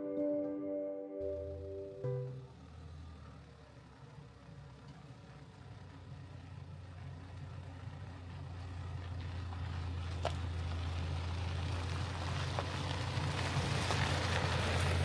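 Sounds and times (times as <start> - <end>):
engine and road drone: 1.2 - 15.0.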